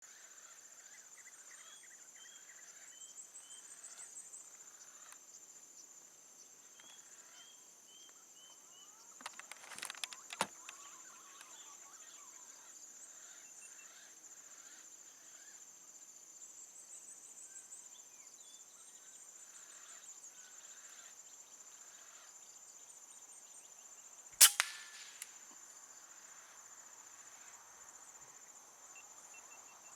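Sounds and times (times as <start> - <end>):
rustling and light knocks: 9.2 - 10.8
air rifle shot: 24.4 - 25.6.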